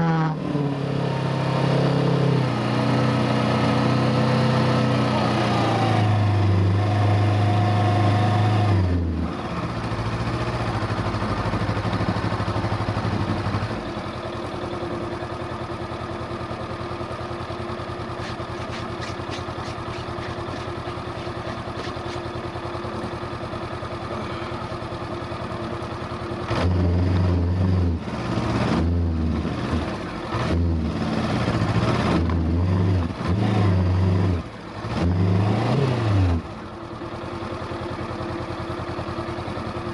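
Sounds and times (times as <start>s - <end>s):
motorcycle engine revving: 0.0s - 15.3s, 18.1s - 22.5s, 26.3s - 36.8s.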